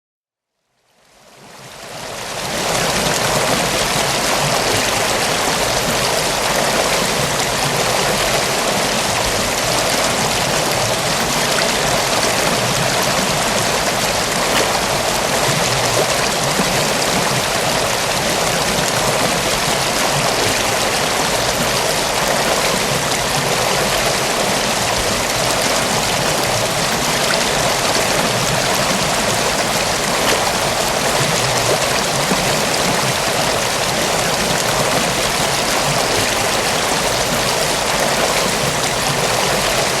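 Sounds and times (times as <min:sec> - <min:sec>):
river water rushing: 0:01.5 - 0:40.0.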